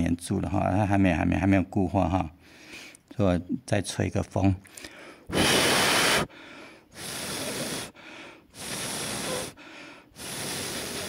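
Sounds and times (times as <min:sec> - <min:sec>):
quiet in-breaths: 0:02.4 - 0:03.1, 0:04.6 - 0:11.0
person blowing puffs of breath: 0:04.7 - 0:11.0.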